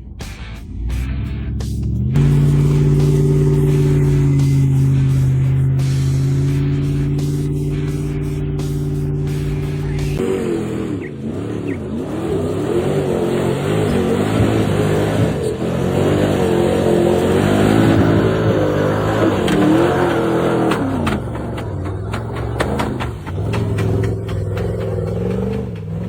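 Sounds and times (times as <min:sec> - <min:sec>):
truck engine revving: 0:00.0 - 0:26.0
sharp knocks: 0:19.4 - 0:26.0.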